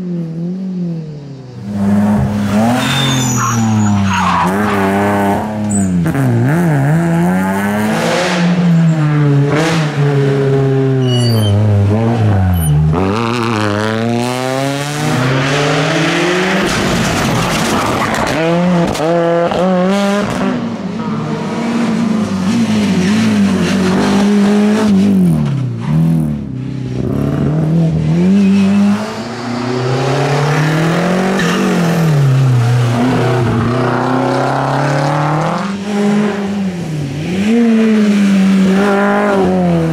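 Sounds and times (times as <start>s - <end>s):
rally car engine revving: 1.6s - 39.9s.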